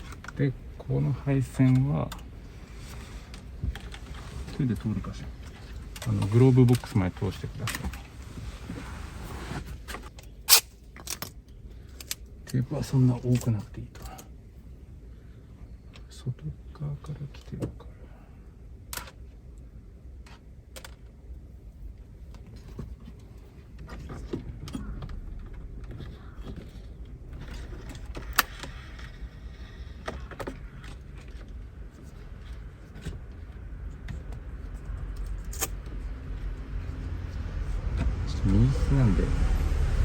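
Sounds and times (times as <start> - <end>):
steady low rumble: 17.8 - 40.0
hands handling wiring and tape: 20.1 - 38.2.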